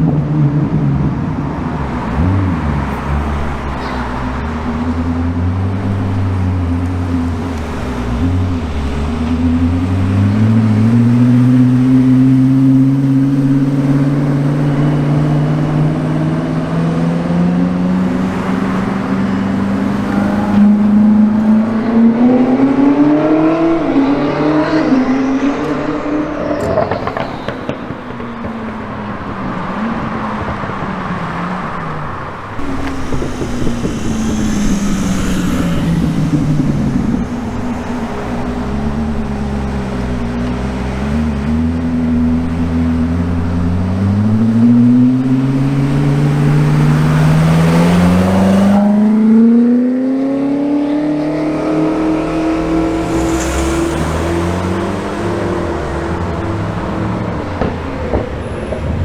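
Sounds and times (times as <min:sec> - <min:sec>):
car engine rising in pitch: 0:00.1 - 0:27.6, 0:31.6 - 0:58.7.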